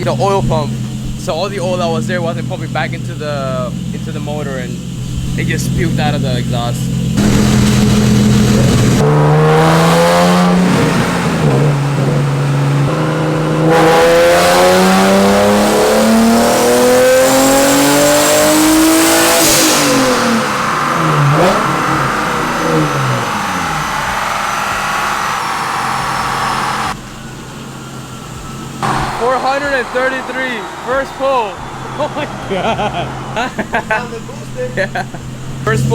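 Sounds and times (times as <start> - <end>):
car engine revving: 0.0 - 35.9
high turbo whistle: 7.2 - 35.9.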